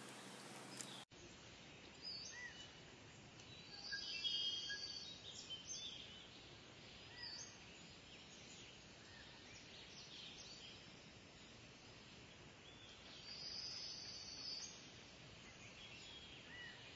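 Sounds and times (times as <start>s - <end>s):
birds chirping and whistling: 0.0s - 1.0s
background hiss: 0.0s - 16.9s.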